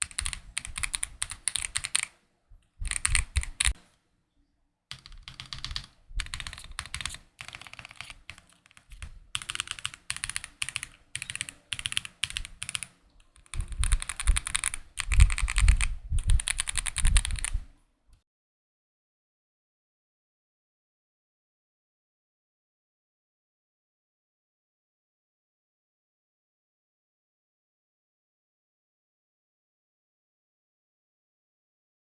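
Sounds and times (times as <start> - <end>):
mechanical keyboard typing: 0.0 - 2.2, 2.8 - 3.8, 4.9 - 17.6.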